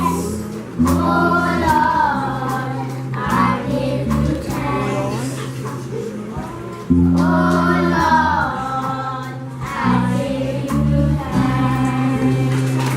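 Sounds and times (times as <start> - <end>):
children singing together: 0.0 - 5.7, 6.4 - 12.9
instrumental accompaniment of chords: 6.8 - 12.9.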